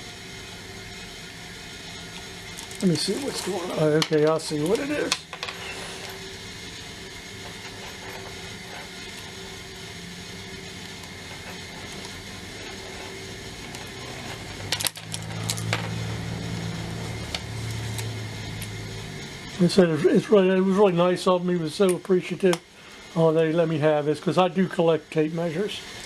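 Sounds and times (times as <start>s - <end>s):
steady low hum: 0.0s - 25.4s.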